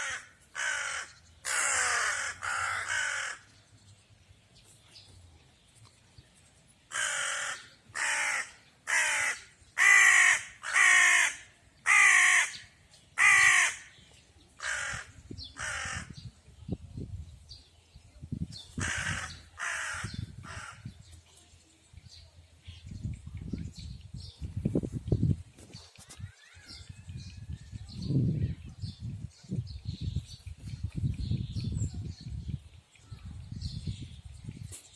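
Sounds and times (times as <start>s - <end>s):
bird harsh calls: 0.0s - 3.7s, 6.9s - 14.0s, 14.6s - 16.3s, 18.6s - 21.0s.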